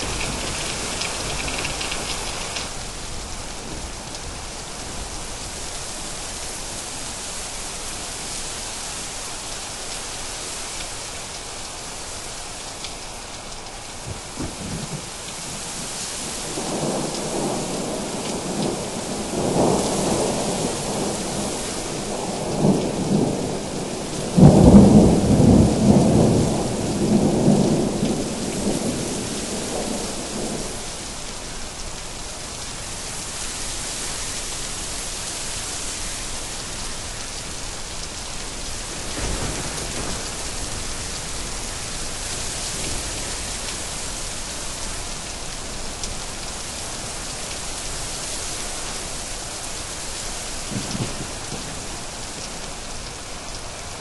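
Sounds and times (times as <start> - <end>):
steady rain: 0.0 - 54.0
rolling thunder: 16.3 - 31.1, 38.9 - 41.2
loud thunderclap: 24.3 - 30.6, 39.1 - 40.6.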